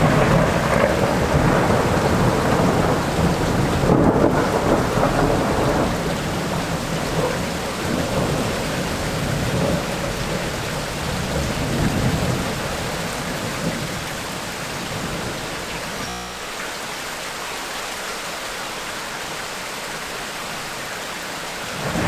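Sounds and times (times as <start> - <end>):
thunder rumbling: 0.0 - 16.0, 21.7 - 22.0
heavy rain pouring: 0.0 - 22.0.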